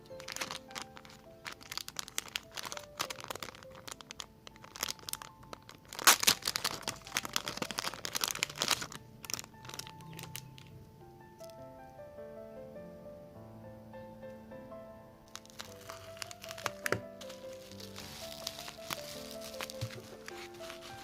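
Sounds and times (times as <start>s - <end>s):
plastic packaging crinkling: 0.0s - 10.7s, 15.3s - 21.0s
soft background music: 0.0s - 21.0s.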